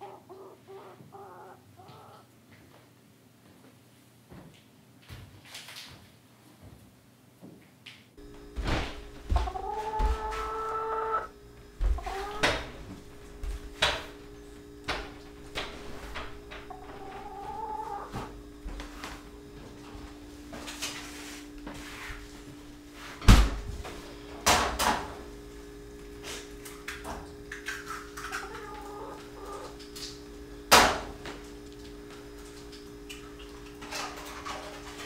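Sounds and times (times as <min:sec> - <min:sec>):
steady low hum: 0:08.2 - 0:35.0.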